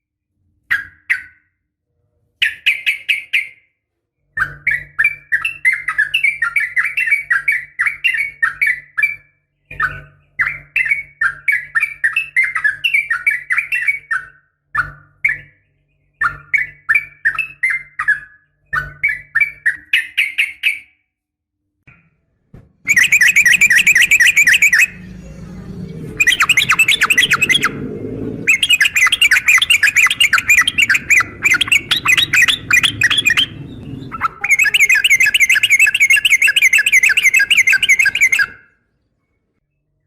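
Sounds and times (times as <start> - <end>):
bulbul singing bubbling chatter: 22.9 - 38.6.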